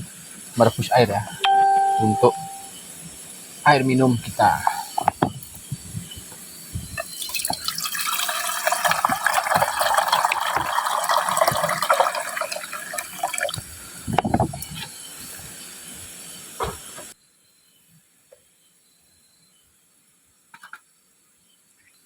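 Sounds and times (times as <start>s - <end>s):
pot knocking: 5.0s - 5.4s
water pouring into pot: 7.0s - 14.1s.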